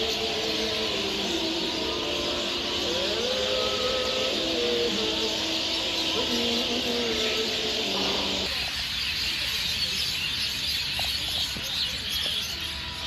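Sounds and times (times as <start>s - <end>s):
held pitched tone: 0.0s - 8.5s
birds chirping: 0.0s - 13.0s.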